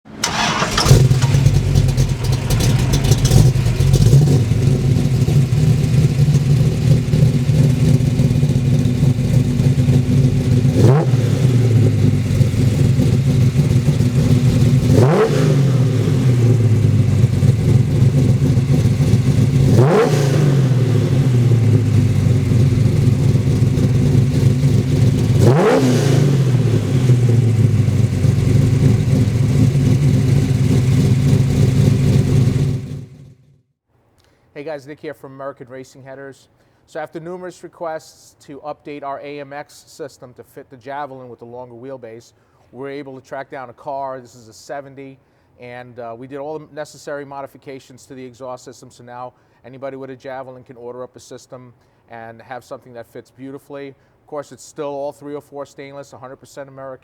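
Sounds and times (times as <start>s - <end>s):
car engine idling with throttle blips: 0.1s - 33.4s.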